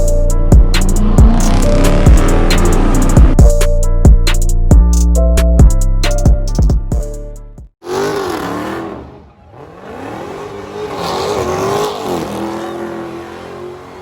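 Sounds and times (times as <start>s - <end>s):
car engine revving: 0.4s - 3.4s, 7.8s - 14.0s.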